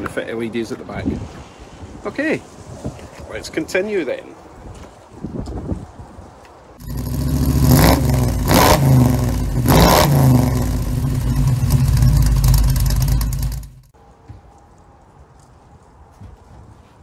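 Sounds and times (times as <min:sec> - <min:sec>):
car engine running and revving: 0:06.8 - 0:13.9.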